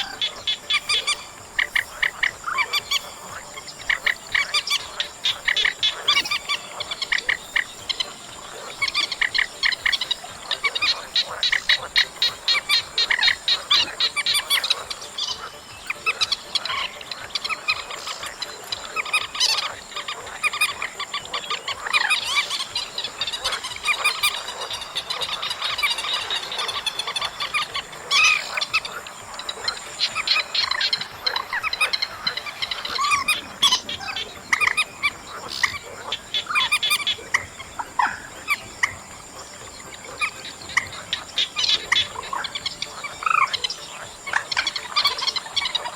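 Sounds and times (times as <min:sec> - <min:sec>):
marsh bird calling short notes: 0:00.0 - 0:17.6.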